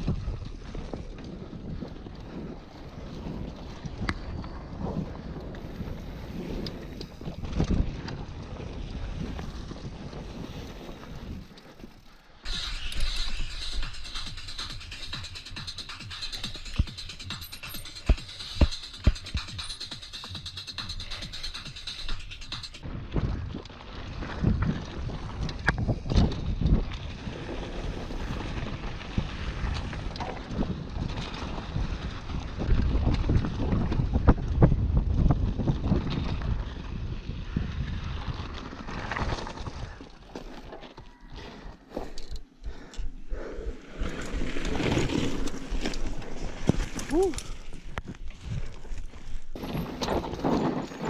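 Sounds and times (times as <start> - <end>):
wind buffeting microphone: 0.0 - 11.5, 22.1 - 40.3
mountain bike rattling on dirt: 0.0 - 51.0
steady low rumble: 12.4 - 25.7
music: 12.5 - 22.8
bike knocks and rattles: 13.8 - 27.2, 44.1 - 51.0.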